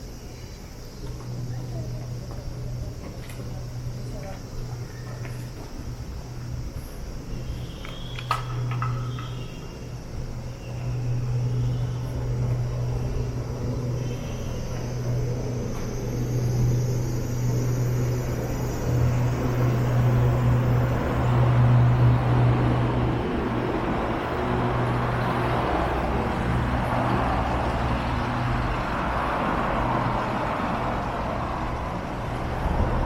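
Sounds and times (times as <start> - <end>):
low engine hum: 0.0 - 33.0
road noise from passing cars: 0.0 - 33.0.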